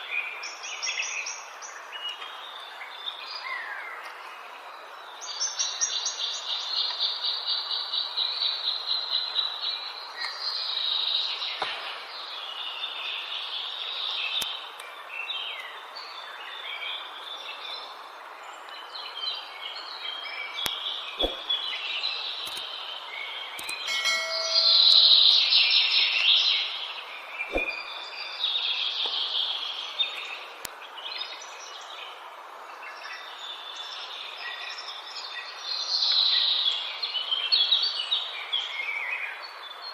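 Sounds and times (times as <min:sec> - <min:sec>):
birds chirping: 0:00.0 - 0:39.9
steady background hiss: 0:00.0 - 0:39.9
high bird trill: 0:23.6 - 0:25.6.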